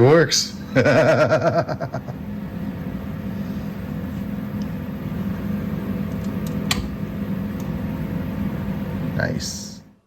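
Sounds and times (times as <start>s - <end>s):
mechanical fan hum: 0.0s - 10.0s
sharp click: 6.2s - 6.9s.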